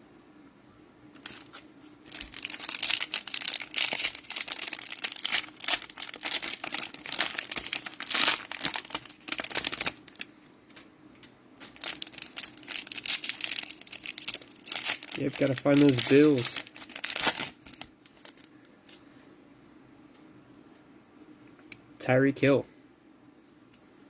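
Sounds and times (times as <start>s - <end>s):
cellophane wrapper crinkling: 1.2s - 10.3s, 11.6s - 18.5s.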